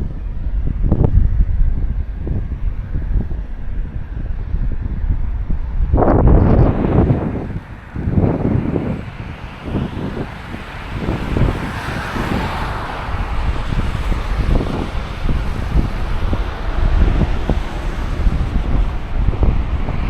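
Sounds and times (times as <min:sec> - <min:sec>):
wind buffeting microphone: 0:00.0 - 0:20.0
passing vehicle traffic hiss: 0:06.6 - 0:20.0.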